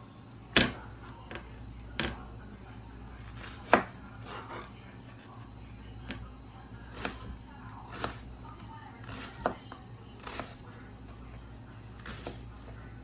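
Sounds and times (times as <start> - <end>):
knife chopping on cutting board: 3.2 - 4.7, 6.9 - 8.4, 9.0 - 10.6.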